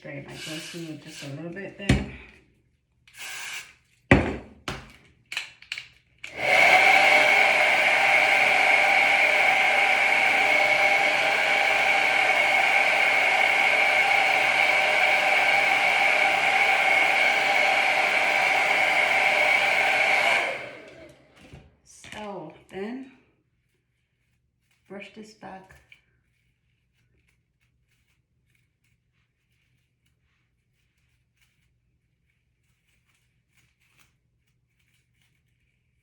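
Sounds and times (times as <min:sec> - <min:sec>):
hair dryer blowing: 0:00.1 - 0:02.3, 0:03.2 - 0:03.7, 0:06.2 - 0:21.6
aerosol hair spray hiss: 0:00.3 - 0:01.5, 0:06.3 - 0:20.8.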